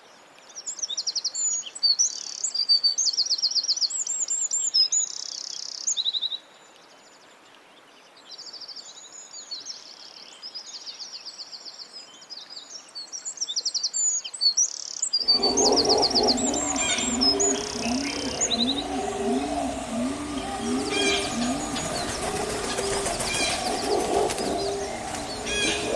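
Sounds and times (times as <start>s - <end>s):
dove cooing: 15.2s - 25.9s
songbirds chirping and trilling: 15.2s - 25.9s.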